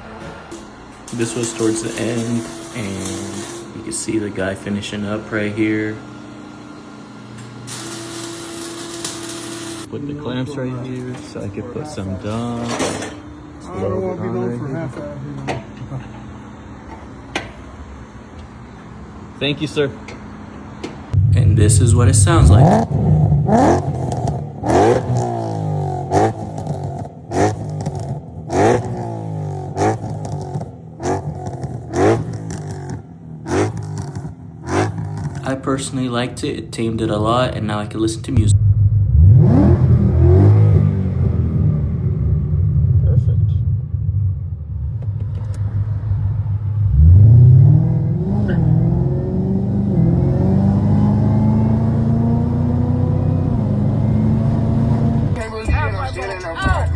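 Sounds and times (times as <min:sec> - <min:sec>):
car engine revving in blips: 0:20.0 - 0:36.9, 0:38.3 - 0:56.9.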